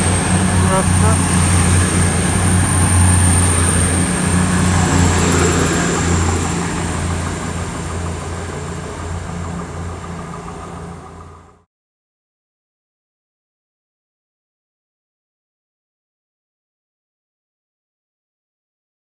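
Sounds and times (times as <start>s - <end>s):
diesel train engines droning: 0.0s - 11.6s.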